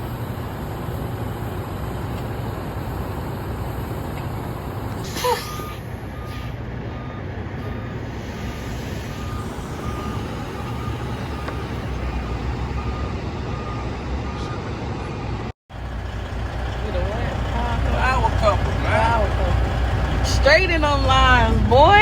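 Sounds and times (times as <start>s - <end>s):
reversing beeper: 0.0s - 14.8s
diesel truck engine running: 0.0s - 22.0s.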